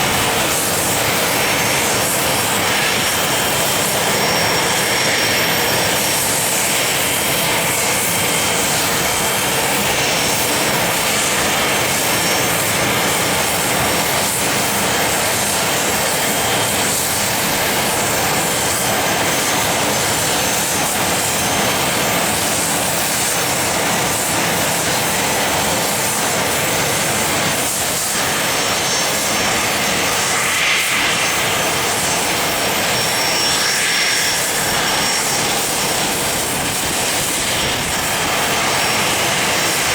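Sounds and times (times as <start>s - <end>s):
jet engines running: 0.0s - 39.9s
faint high whine: 26.3s - 39.9s.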